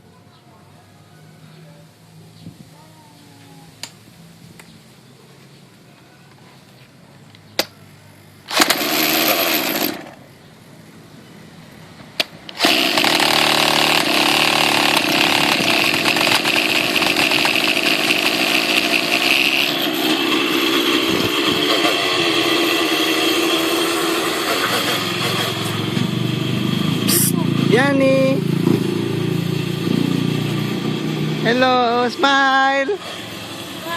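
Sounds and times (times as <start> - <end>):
model helicopter engine running: 12.6 - 28.0, 29.6 - 33.9.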